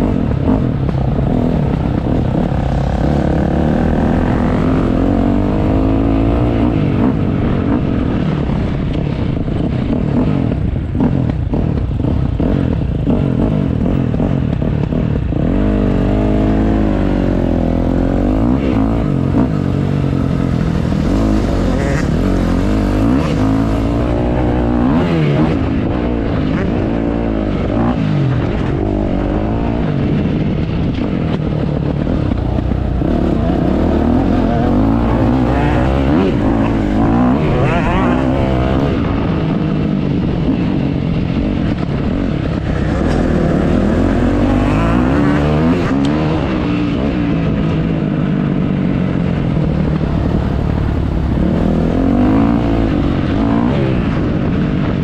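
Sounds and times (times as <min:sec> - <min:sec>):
dirt bike engine revving: 0:00.0 - 0:08.0, 0:12.0 - 0:30.1, 0:32.9 - 0:39.6, 0:42.4 - 0:46.8.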